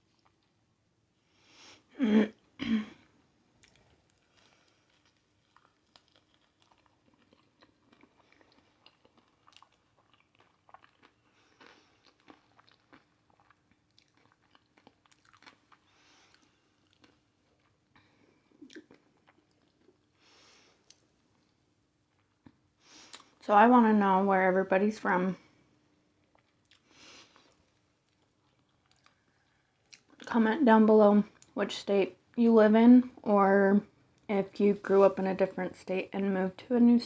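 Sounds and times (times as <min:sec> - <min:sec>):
crunchy chewing: 0:03.6 - 0:20.2, 0:26.2 - 0:30.3.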